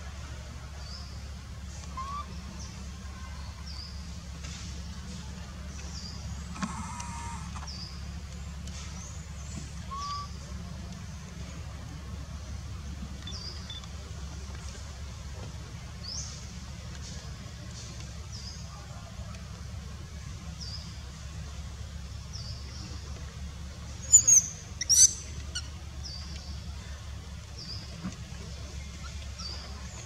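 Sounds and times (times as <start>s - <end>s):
low background hum: 0.0s - 30.0s
bird chirping: 24.0s - 27.0s
shrill squeaks: 24.1s - 25.7s.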